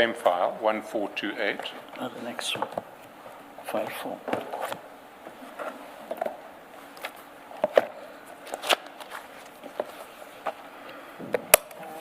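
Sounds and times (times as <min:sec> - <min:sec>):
paper pages rustling: 0:06.8 - 0:10.6.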